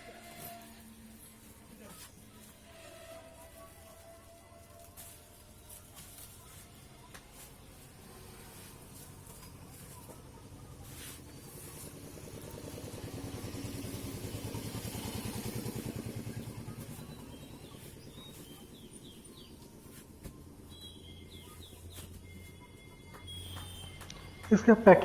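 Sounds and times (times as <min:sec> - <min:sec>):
vehicle engine passing by: 0:07.7 - 0:19.4
birds chirping faintly: 0:14.6 - 0:24.5.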